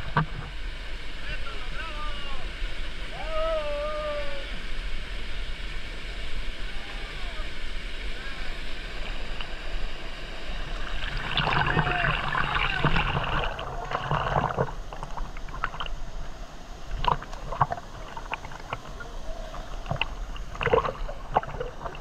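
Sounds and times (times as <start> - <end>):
water splashing: 6.7 - 22.0
water dripping: 10.9 - 16.3, 16.9 - 22.0.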